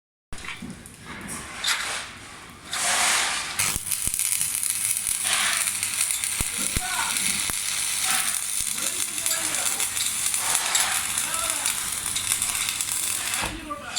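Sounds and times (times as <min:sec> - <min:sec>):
welding arc hissing bursts: 0:02.7 - 0:13.7
arc welding crackling sizzle: 0:02.7 - 0:13.9.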